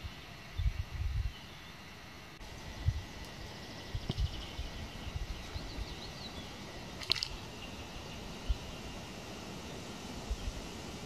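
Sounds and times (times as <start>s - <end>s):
wind rumble on microphone: 0.0s - 1.4s, 2.6s - 9.0s, 10.1s - 11.0s
small birds calling: 0.0s - 11.0s.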